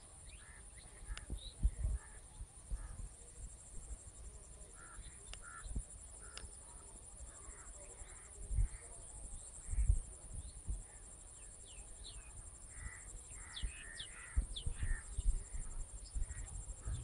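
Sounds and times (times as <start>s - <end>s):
harsh caw-like calls: 4.8s - 6.5s, 12.7s - 15.6s
birds calling: 4.8s - 6.8s, 11.7s - 17.0s.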